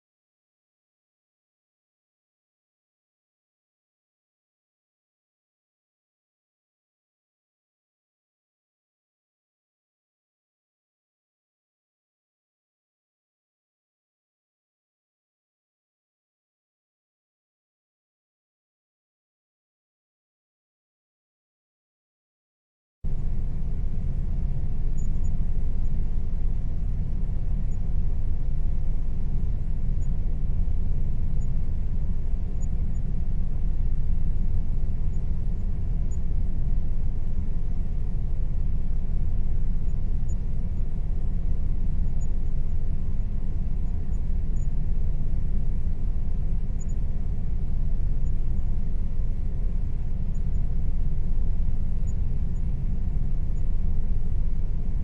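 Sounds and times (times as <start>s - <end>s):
faint steady tones: 23.1s - 55.0s.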